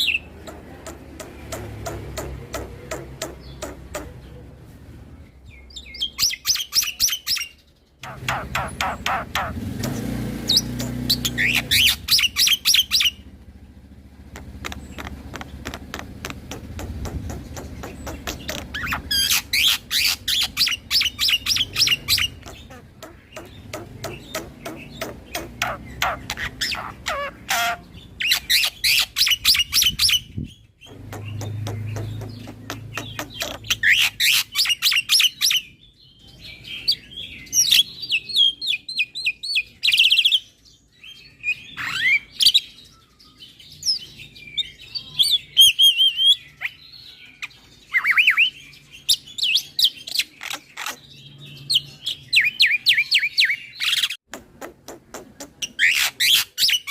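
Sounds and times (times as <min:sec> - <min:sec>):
bird singing chatter and whistles: 0:05.6 - 0:13.2, 0:14.6 - 0:54.2
myna singing sharp calls: 0:06.0 - 0:13.2.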